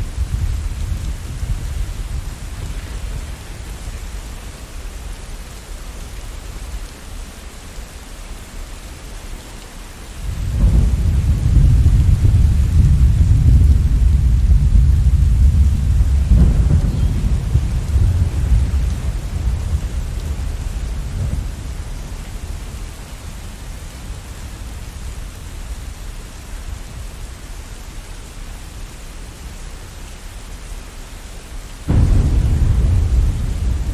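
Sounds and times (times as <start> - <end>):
thunder rumbling: 0.0 - 5.1, 10.2 - 25.9, 31.8 - 33.9
steady rain: 0.0 - 33.9.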